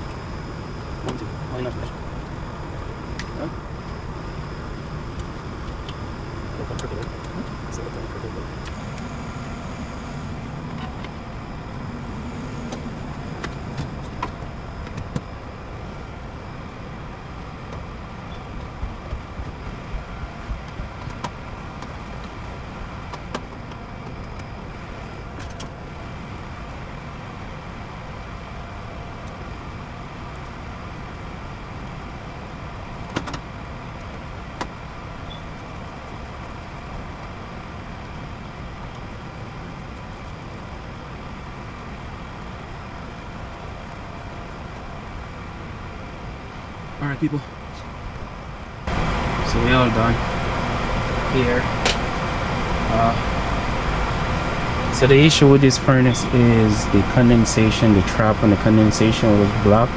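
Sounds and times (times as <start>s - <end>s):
furnace fans whirring: 0.0s - 59.9s.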